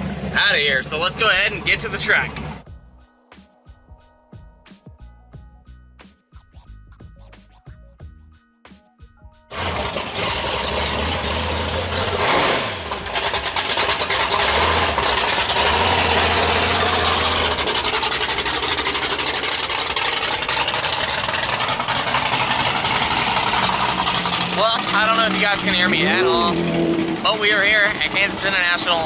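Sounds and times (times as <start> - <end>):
loud car engines running: 0.0 - 2.6, 9.5 - 29.0.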